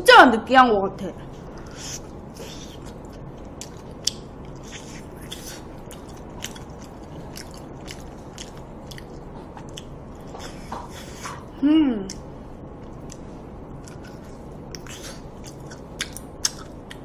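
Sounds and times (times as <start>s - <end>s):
wet mouth clicks and smacks: 14.7s - 17.0s.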